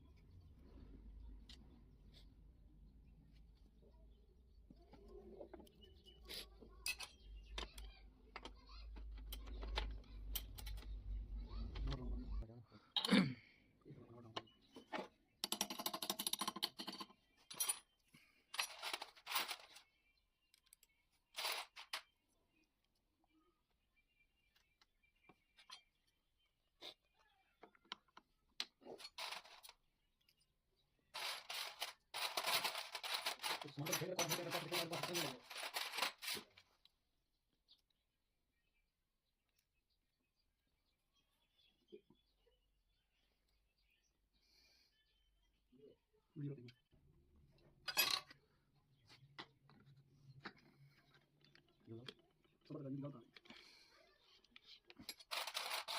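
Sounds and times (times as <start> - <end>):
small objects rustling: 17.4 - 20.1, 21.1 - 22.2, 28.8 - 29.9, 31.1 - 36.8, 49.8 - 55.9.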